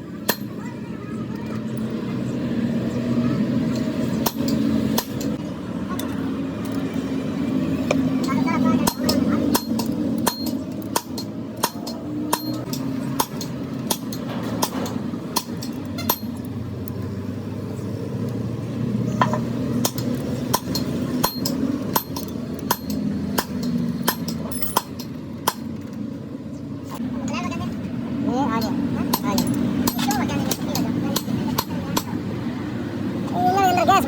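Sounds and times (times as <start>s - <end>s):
low mechanical hum: 0.0s - 34.0s
sharp metallic taps and clinks: 7.8s - 17.0s, 19.2s - 26.0s, 28.6s - 32.1s.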